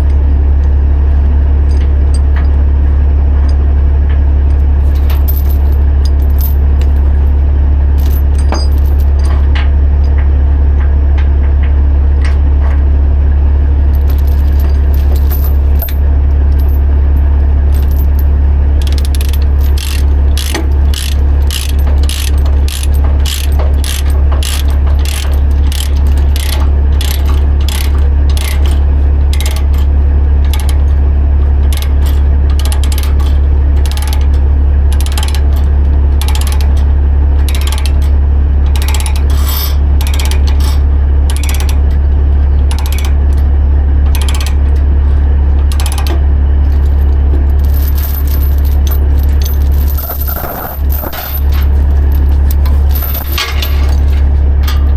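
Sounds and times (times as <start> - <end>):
steady low hum: 0.0 - 54.9
ratchet binder pawl clicking: 18.8 - 29.8.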